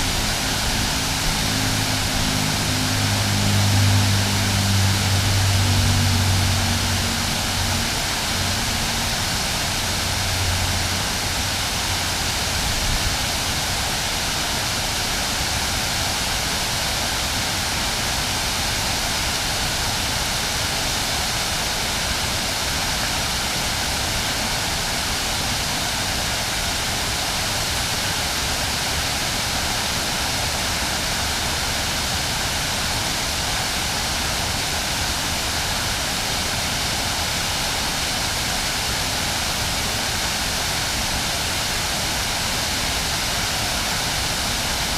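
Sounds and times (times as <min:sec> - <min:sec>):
low hum: 0:00.0 - 0:13.0
water pouring over falls: 0:00.0 - 0:44.9.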